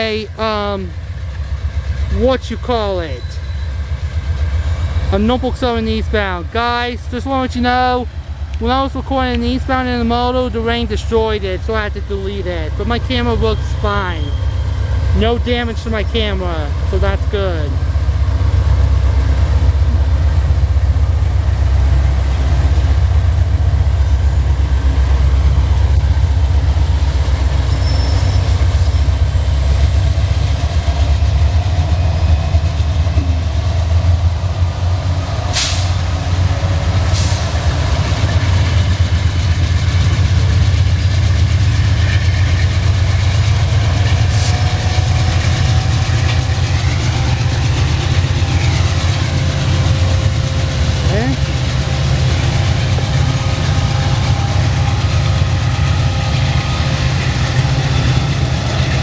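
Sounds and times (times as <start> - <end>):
freight train wheels rumbling on rail: 0.0 - 59.0
rail joint clicks: 0.0 - 59.0.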